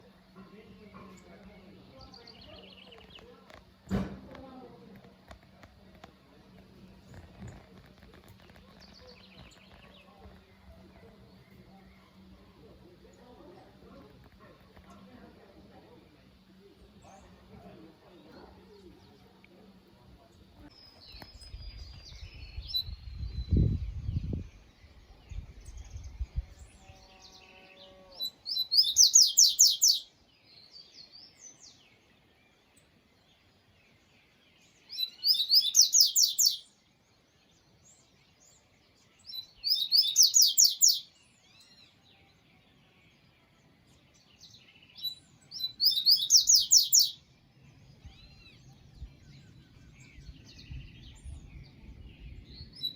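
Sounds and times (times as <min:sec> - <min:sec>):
songbird trilling: 0:28.2 - 0:30.1, 0:34.9 - 0:36.7, 0:39.3 - 0:41.9, 0:44.9 - 0:47.2.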